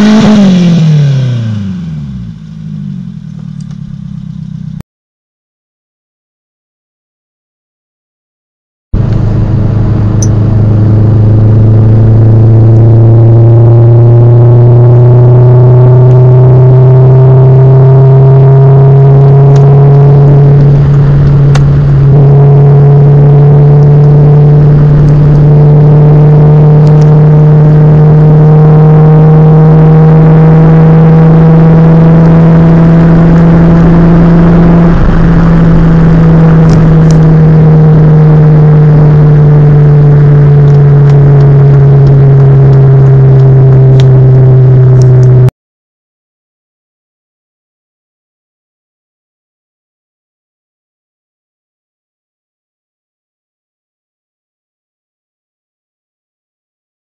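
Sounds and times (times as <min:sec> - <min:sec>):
car engine droning: 0:00.0 - 0:04.8, 0:09.0 - 0:45.5.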